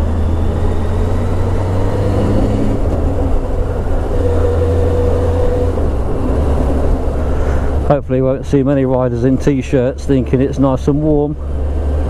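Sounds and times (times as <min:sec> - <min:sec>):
air rushing past: 0:02.2 - 0:07.9.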